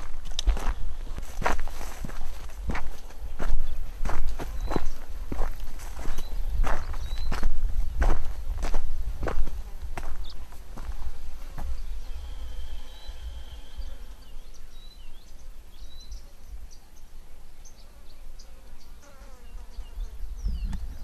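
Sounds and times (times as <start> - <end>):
footsteps on dirt: 0.0 - 14.3
small birds chirping and whistling: 3.4 - 7.6, 10.0 - 21.0
low rumble: 10.8 - 14.8.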